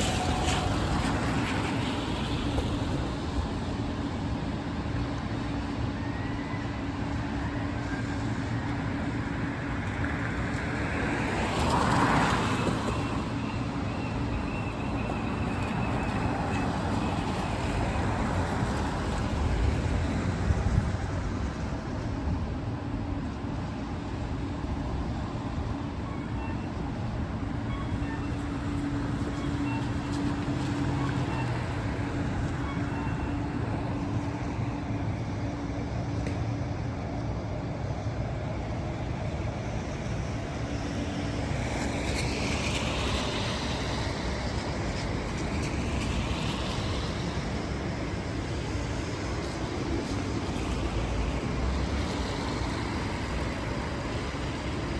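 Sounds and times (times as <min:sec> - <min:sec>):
rain noise: 0:00.0 - 0:03.7
hum of traffic engines: 0:00.0 - 0:54.9.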